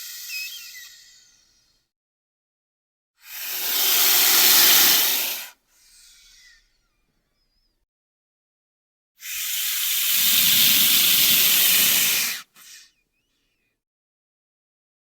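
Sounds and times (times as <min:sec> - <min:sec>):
snake hissing: 0:00.0 - 0:01.7, 0:03.2 - 0:06.5, 0:09.2 - 0:12.9.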